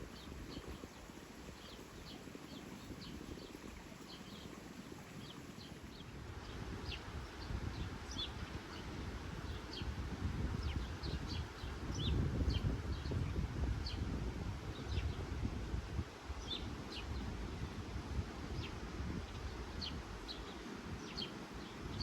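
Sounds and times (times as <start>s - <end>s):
small birds chirping: 19.3s - 22.0s.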